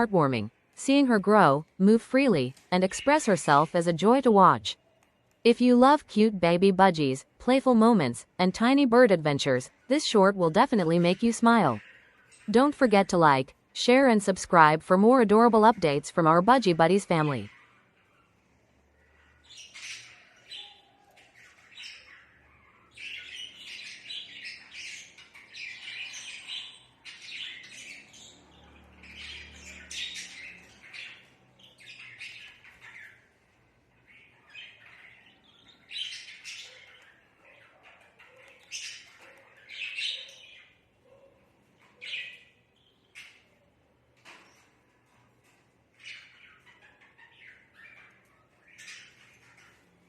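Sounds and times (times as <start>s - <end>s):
budgerigar chirping and chattering: 19.0s - 33.3s, 34.0s - 40.8s, 46.0s - 50.0s.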